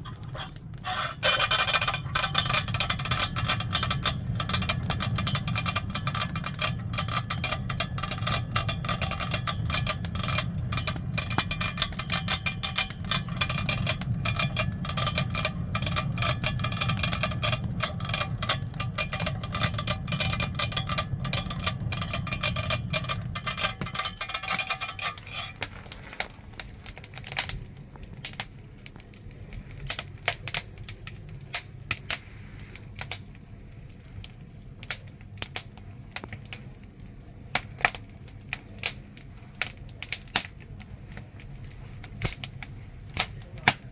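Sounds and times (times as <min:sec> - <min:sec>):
burning wood crackling: 0:00.0 - 0:43.9
hand-cranked blower whirring: 0:00.2 - 0:25.7.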